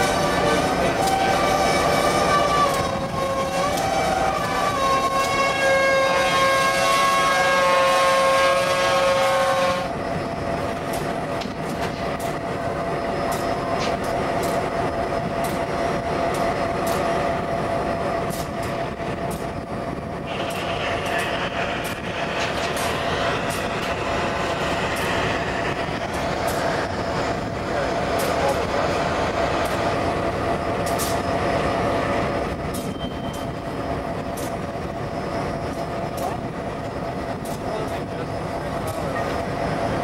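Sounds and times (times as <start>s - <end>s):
locomotive air horn chord: 0.3s - 9.9s
wheels clicking over rail joints: 16.3s - 17.1s, 30.8s - 31.2s.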